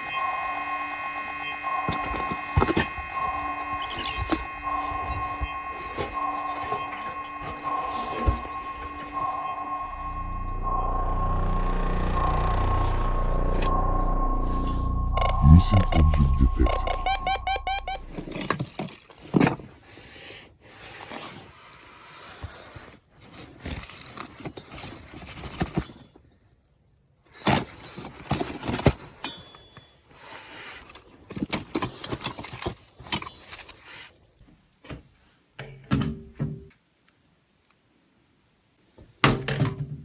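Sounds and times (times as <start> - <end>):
drill motor low hum: 0.0 - 18.5.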